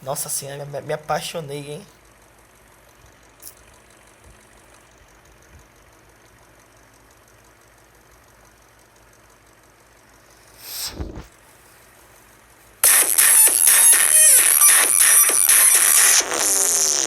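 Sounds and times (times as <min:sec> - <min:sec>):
brief burst of noise: 0:10.4 - 0:11.4.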